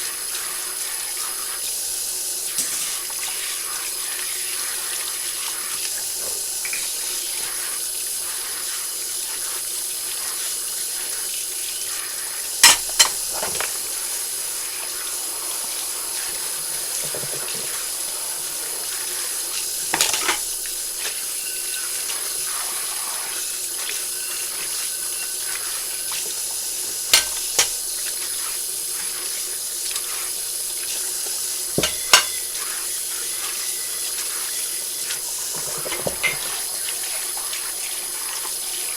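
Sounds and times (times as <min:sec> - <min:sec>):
tap water running into sink: 0:00.0 - 0:38.9
dishes clinking together: 0:02.6 - 0:03.1, 0:12.6 - 0:13.8, 0:19.6 - 0:22.6, 0:27.0 - 0:27.8, 0:31.8 - 0:36.7.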